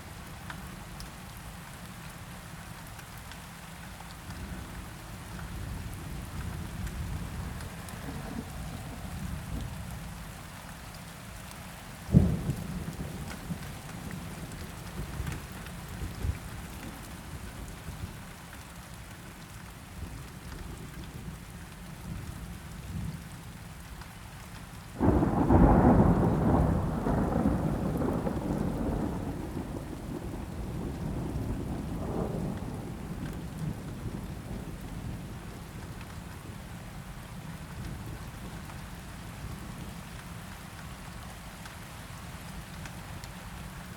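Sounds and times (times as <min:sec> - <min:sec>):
steady rain: 0:00.0 - 0:43.9
thunder crack and rumble: 0:12.1 - 0:17.0, 0:25.0 - 0:36.0.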